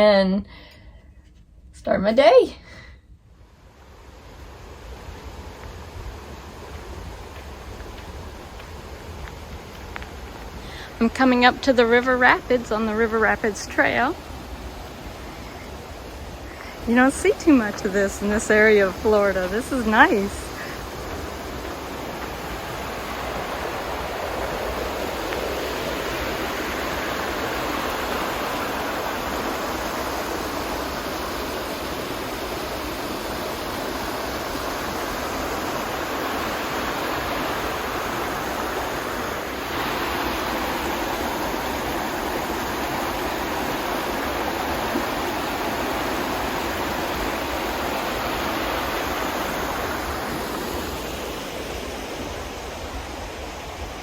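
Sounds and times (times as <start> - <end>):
river rapids rushing: 4.2 - 54.0.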